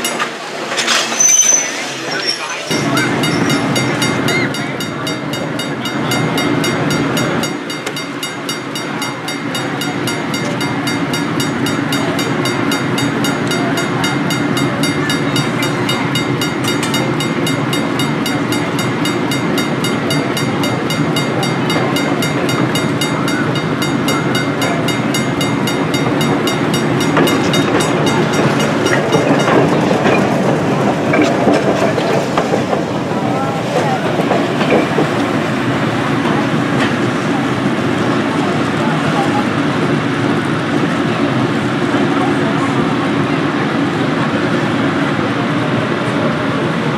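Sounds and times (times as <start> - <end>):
trolley motor hum: 0.0 - 46.9
wheels on rail noise: 0.0 - 46.9
fine regular ticking: 2.7 - 29.9.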